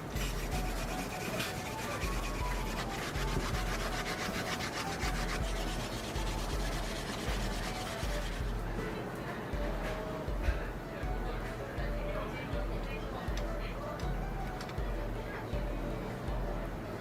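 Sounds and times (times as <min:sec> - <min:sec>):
yam rasping on a grater: 0:00.0 - 0:08.6.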